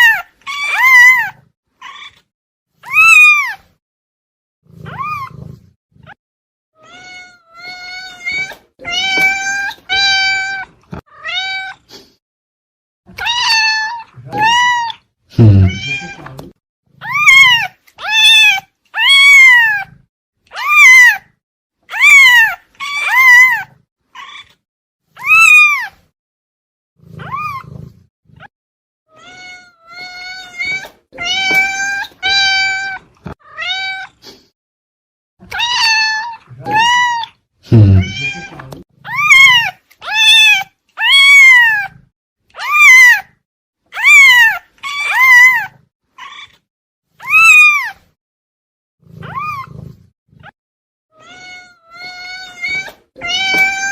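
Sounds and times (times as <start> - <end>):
cat meowing: 0.0 - 2.2, 2.8 - 3.7, 4.8 - 5.4, 6.8 - 11.8, 13.2 - 16.4, 17.0 - 21.2, 21.9 - 24.6, 25.2 - 26.0, 27.2 - 27.8, 29.1 - 34.2, 35.4 - 42.0, 42.6 - 43.4, 44.0 - 48.0, 49.2 - 49.8, 50.4 - 53.9.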